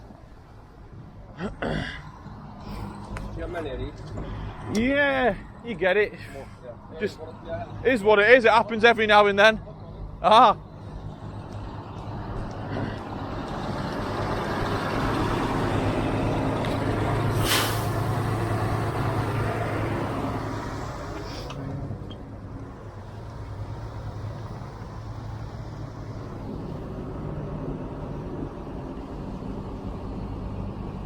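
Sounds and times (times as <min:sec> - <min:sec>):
diesel truck engine running: 0:09.7 - 0:31.0
air brakes hissing: 0:17.3 - 0:18.4, 0:20.1 - 0:21.7.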